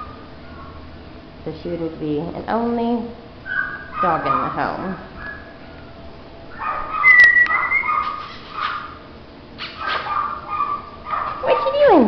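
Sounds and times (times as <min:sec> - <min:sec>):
dog whining: 0:03.4 - 0:09.0.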